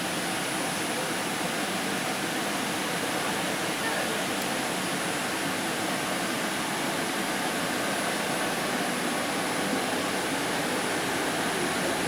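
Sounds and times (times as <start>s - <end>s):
train running noise in tunnel: 6.7s - 12.0s.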